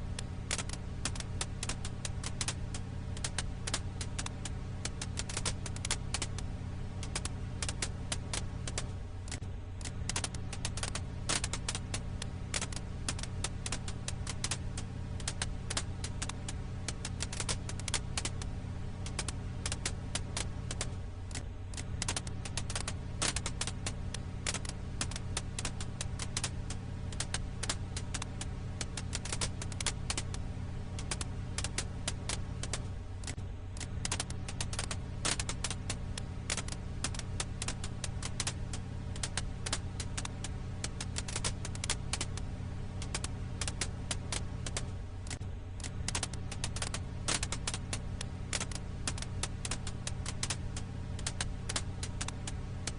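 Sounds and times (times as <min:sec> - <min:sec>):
firewood crackling: 0:00.0 - 0:52.9
steady low hum: 0:00.0 - 0:52.9.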